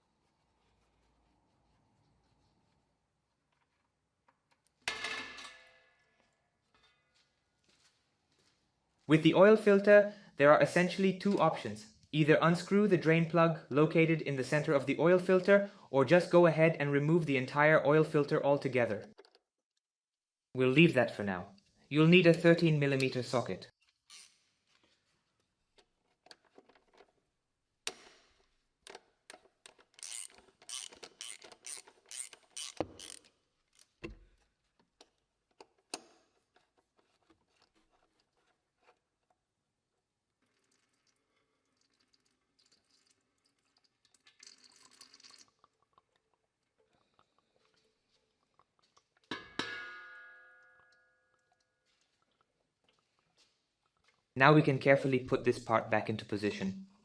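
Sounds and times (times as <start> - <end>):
ratchet wrench clicking: 29.8 - 33.3.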